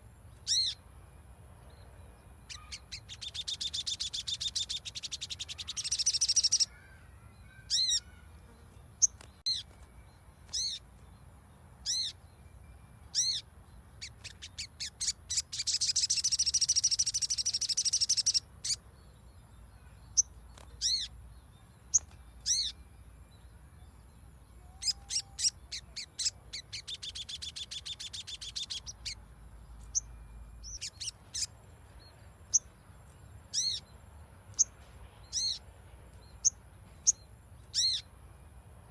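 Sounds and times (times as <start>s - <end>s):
sharp high bird calls: 0.4s - 0.8s, 2.4s - 8.4s, 10.5s - 10.9s, 11.8s - 12.2s, 13.1s - 18.8s, 19.8s - 21.2s, 21.9s - 22.8s, 24.5s - 29.2s, 29.8s - 31.6s, 33.5s - 33.9s, 34.6s - 35.6s, 36.4s - 38.1s
fast chattering bird trills: 2.5s - 6.7s, 14.0s - 18.4s, 24.8s - 29.2s.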